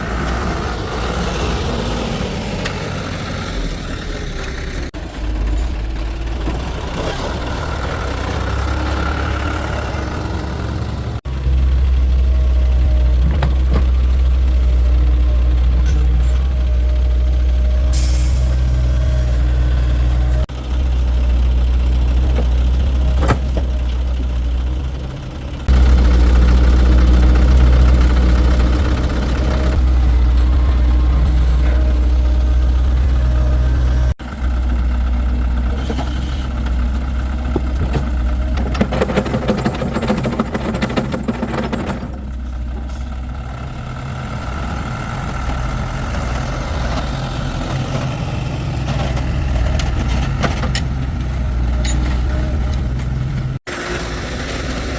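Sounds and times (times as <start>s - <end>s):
heavy diesel engine rumbling: 0.0s - 54.9s.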